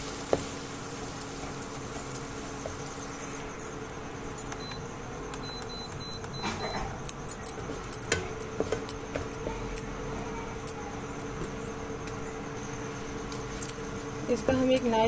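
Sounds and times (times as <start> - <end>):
food sizzling in a pan: 0.0 - 3.9.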